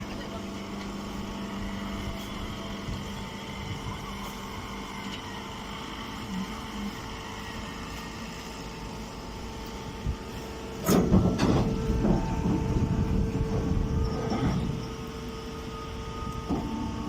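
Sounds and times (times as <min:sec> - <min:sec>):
machinery steady hum: 0:00.0 - 0:17.0
machinery clank: 0:10.8 - 0:14.9
machinery rattling and clattering: 0:10.8 - 0:15.1.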